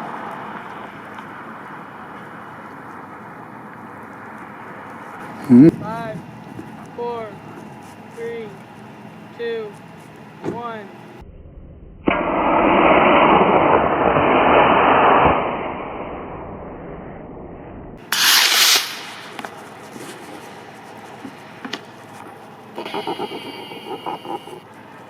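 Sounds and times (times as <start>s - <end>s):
rocket motor roaring: 22.8s - 24.7s.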